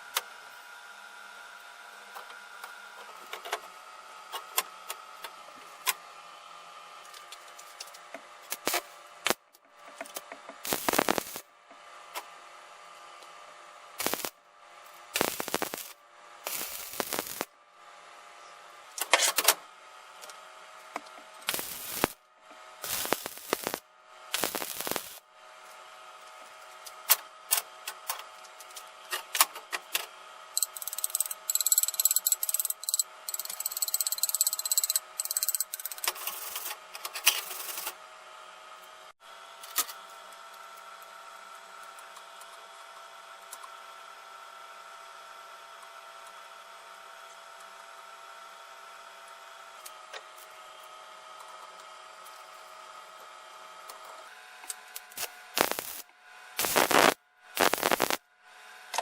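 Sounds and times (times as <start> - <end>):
rapid ticking hiss: 10.7 - 11.4, 15.2 - 15.8, 16.5 - 17.4, 22.9 - 23.8, 24.4 - 25.2, 30.6 - 35.8, 55.6 - 56.0, 56.6 - 58.2
steady hum: 10.7 - 11.4, 14.0 - 14.4, 15.1 - 17.5, 21.5 - 22.2, 22.8 - 23.8, 24.4 - 25.2, 30.6 - 36.0, 54.9 - 58.2.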